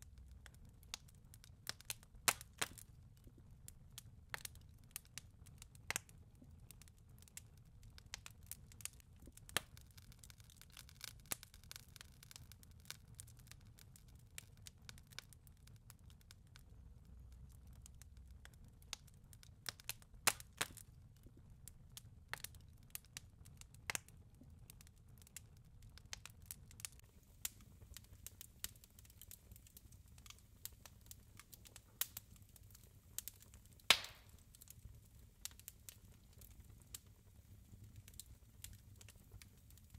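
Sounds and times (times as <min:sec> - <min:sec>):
burning wood crackling: 0:00.0 - 0:39.9.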